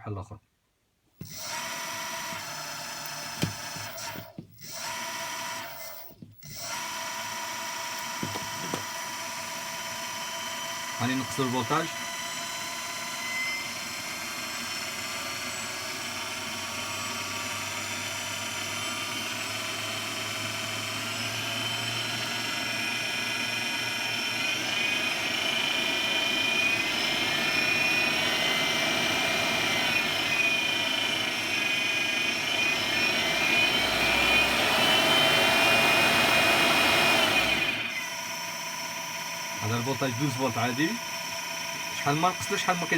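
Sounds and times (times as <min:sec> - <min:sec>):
electric motor whirring whine: 0:01.2 - 0:42.9.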